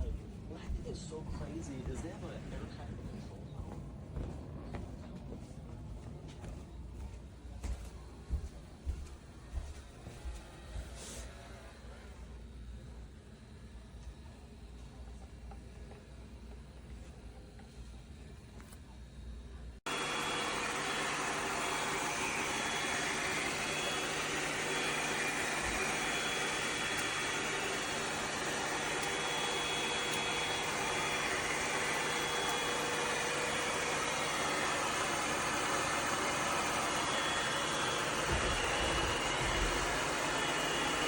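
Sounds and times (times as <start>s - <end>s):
robot vacuum suction whine: 19.9s - 41.0s.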